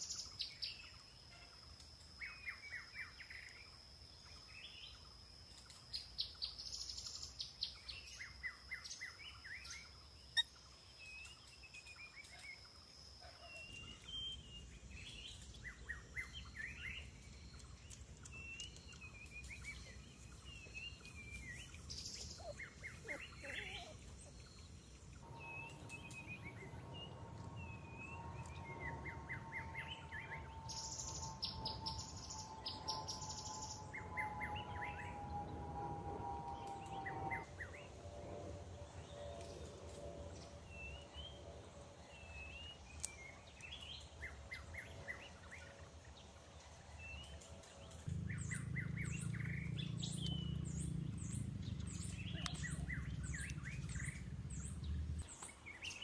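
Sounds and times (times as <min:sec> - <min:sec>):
steady high whine: 0:13.7 - 0:46.2
birds chirping and calling: 0:15.0 - 0:35.4, 0:47.2 - 0:56.0.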